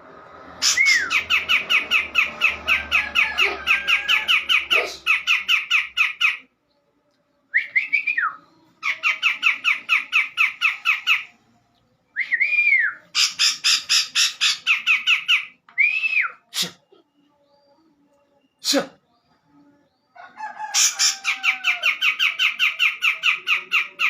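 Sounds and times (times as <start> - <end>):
bird whistled note: 0.6 - 1.2.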